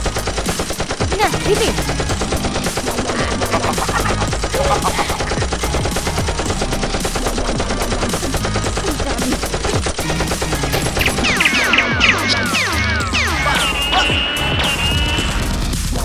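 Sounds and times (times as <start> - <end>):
machine-gun fire: 0.0 - 15.4
high falling whistles: 11.0 - 15.5.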